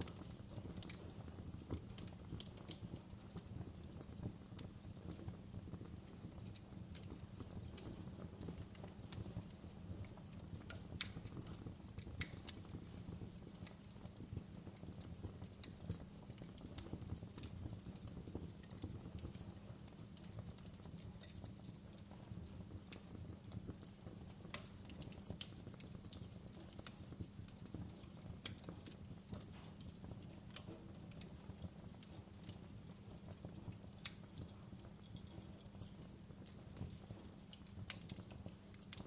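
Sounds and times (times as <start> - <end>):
wood fire crackling: 0.0 - 39.0.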